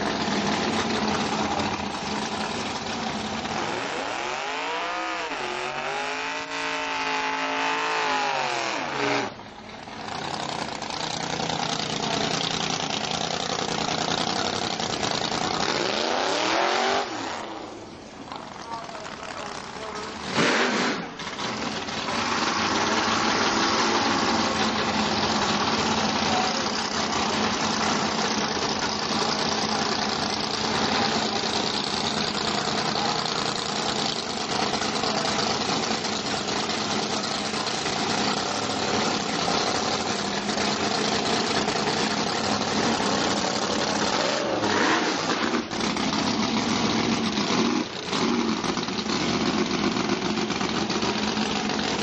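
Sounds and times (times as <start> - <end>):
racing car engine idling: 0.0 - 3.8, 9.3 - 15.9, 21.1 - 52.0.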